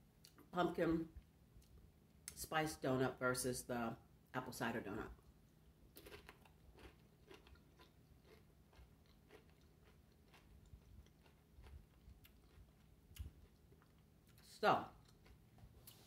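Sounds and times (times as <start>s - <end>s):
tortilla chip crunching: 5.9s - 16.0s.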